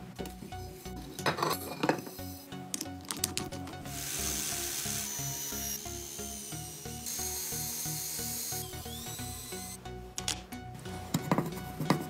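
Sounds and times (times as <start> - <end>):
electric drill whine: 3.9 - 9.8
wire wheel clicking in drill chuck: 4.0 - 10.4.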